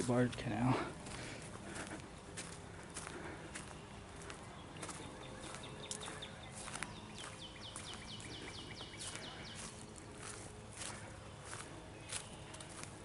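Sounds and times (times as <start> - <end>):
footsteps on a trail: 0.0 - 13.0
bird calling: 2.8 - 12.9.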